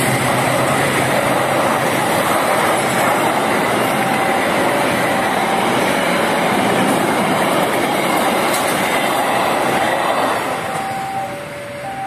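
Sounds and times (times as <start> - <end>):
train wheels rushing and clattering: 0.0 - 11.0
two-tone crossing alarm: 3.4 - 8.1, 10.4 - 12.0.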